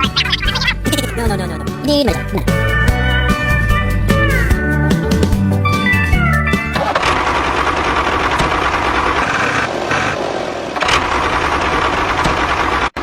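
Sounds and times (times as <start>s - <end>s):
miniature tractor motor running: 6.8s - 10.2s.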